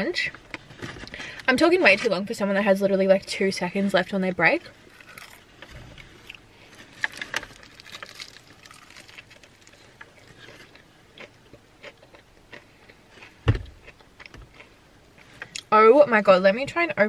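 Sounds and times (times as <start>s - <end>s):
person chewing food: 4.9s - 15.7s
dull thump: 13.4s - 13.8s.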